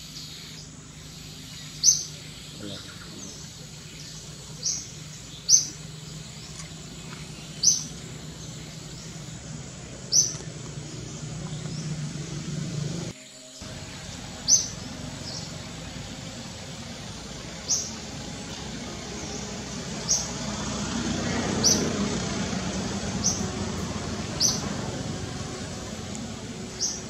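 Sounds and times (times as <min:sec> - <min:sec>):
bird chirping: 0:00.0 - 0:27.0
vehicle passing: 0:00.0 - 0:27.0.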